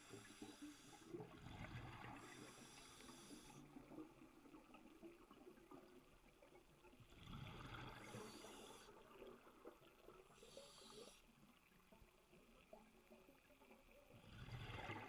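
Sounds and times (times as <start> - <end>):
scuba regulator hissing inhalation: 2.2 - 3.6.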